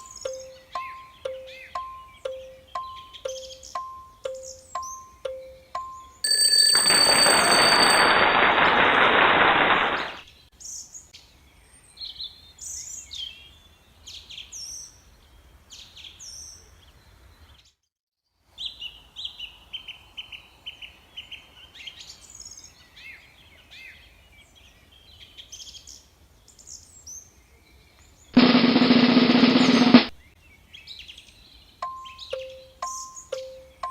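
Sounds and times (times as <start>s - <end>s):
songbirds chirping and singing: 0.0s - 6.2s, 30.2s - 33.9s
bird trill: 0.0s - 8.3s, 31.8s - 33.9s.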